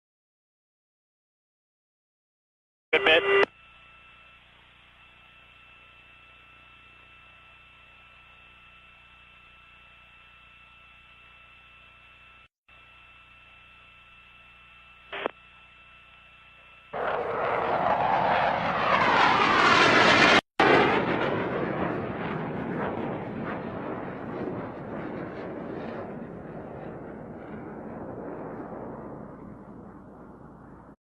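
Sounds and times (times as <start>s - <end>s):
radio hiss with steady tone: 2.9s - 17.0s
jet aircraft flyover: 17.0s - 31.0s.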